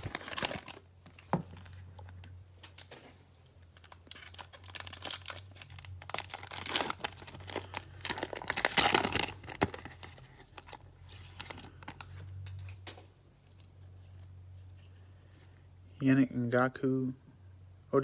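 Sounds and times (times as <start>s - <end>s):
cellophane wrapper crinkling and tearing: 0.0s - 14.3s.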